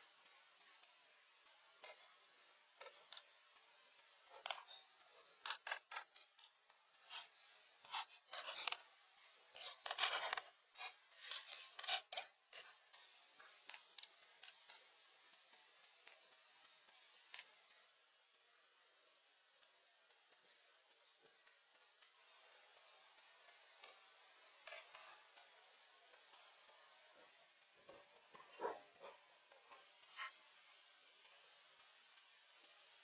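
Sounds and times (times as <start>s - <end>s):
scraping and rubbing strokes: 4.2s - 14.9s, 27.1s - 30.4s.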